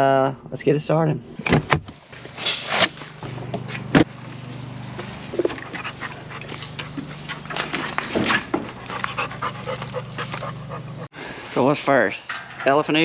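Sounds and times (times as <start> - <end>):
low machine hum: 2.2 - 11.1
dog moving about: 5.0 - 10.9.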